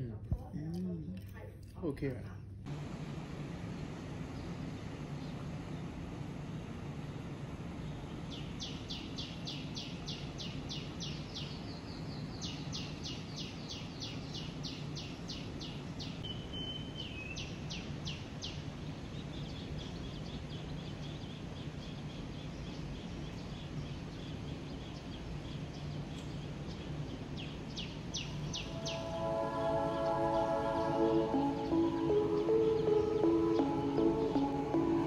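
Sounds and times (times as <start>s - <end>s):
low outdoor hum: 0.0s - 35.0s
bird chirping: 7.8s - 35.0s.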